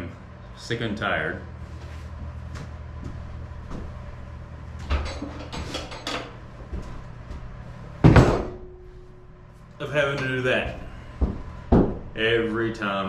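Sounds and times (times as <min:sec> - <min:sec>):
hard objects knocking and clattering: 0:11.2 - 0:12.1.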